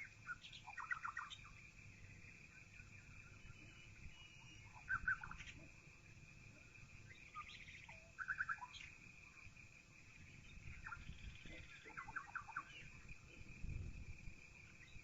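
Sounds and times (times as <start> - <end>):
faint high bird trill: 0.0 - 5.7, 7.0 - 8.9, 10.4 - 13.1.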